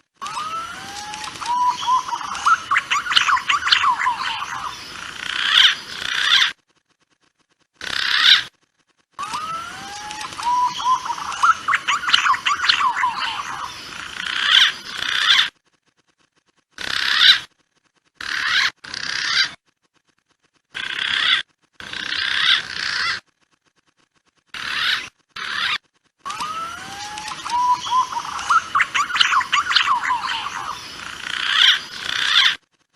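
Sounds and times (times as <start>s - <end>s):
pigeons whistled calls: 0.2s - 4.7s, 9.3s - 13.8s, 26.3s - 30.9s.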